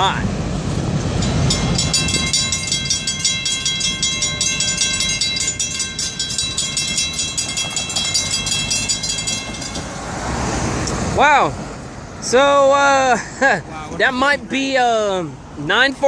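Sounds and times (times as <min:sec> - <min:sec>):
passing train rumble: 0:00.0 - 0:16.0
crossing warning bell ringing: 0:01.0 - 0:10.7.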